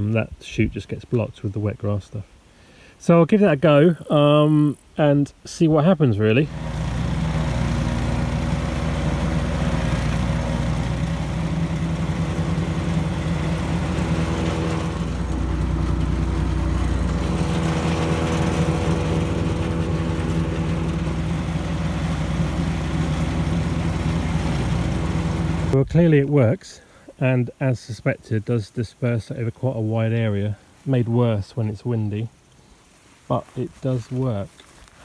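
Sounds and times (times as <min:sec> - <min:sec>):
wood chipper shredding grass: 0:06.4 - 0:25.8.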